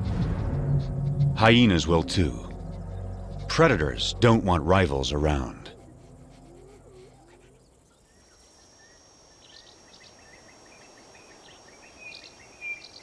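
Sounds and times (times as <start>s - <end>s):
high-pitched insect drone: 0.2s - 13.0s
bird chirps: 5.8s - 13.0s.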